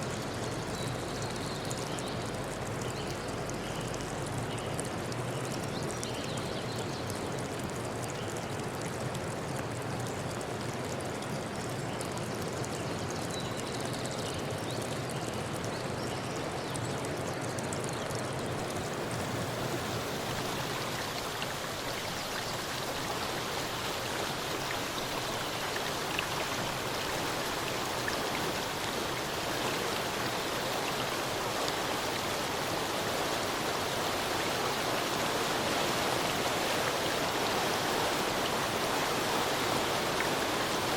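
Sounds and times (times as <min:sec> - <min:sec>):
stream water rushing: 0:18.3 - 0:40.9.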